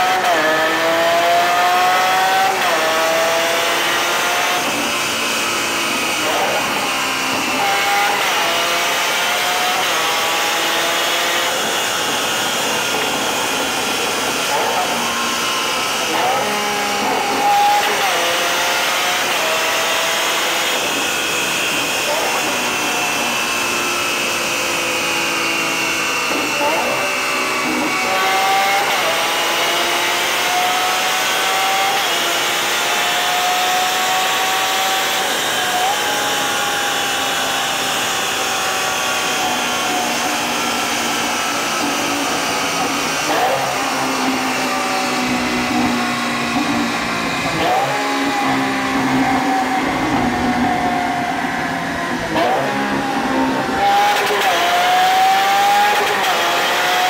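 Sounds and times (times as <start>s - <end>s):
car engine revving through gears: 0.0s - 57.0s.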